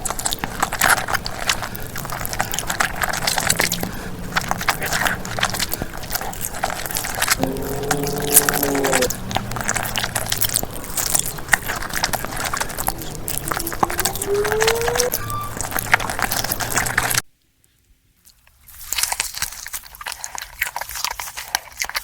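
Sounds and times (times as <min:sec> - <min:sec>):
chewing crunchy food: 0:00.0 - 0:17.2, 0:18.2 - 0:22.0
voice-like hum: 0:07.4 - 0:10.4, 0:12.5 - 0:16.2
rising tone: 0:07.4 - 0:10.6, 0:12.8 - 0:17.2.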